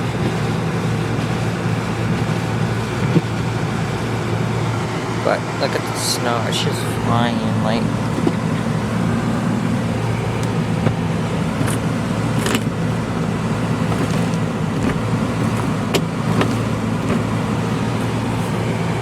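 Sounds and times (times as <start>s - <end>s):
car idling with low hum: 0.0s - 19.0s.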